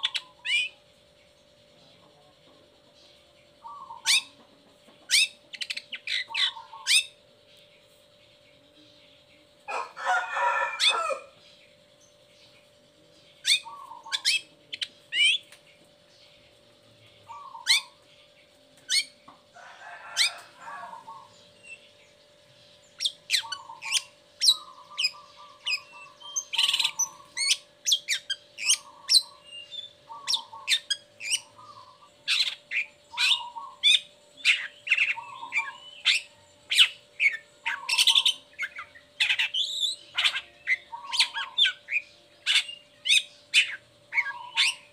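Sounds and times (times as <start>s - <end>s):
shrike singing high chirps: 22.7s - 44.9s.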